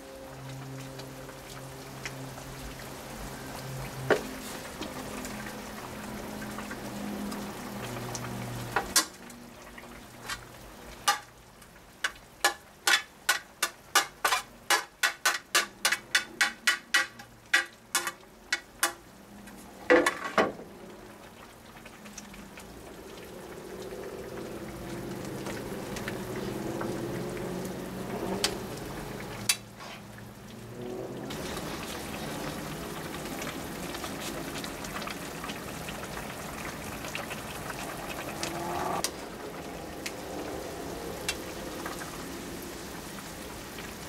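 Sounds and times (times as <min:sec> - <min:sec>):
food frying with a hiss: 0:00.0 - 0:44.0.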